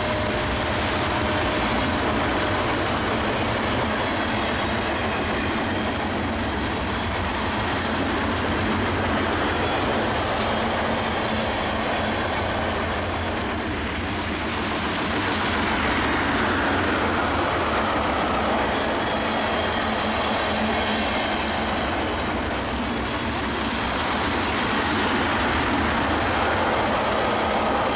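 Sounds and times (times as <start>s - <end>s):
freight train wheels on rails: 0.0s - 27.9s.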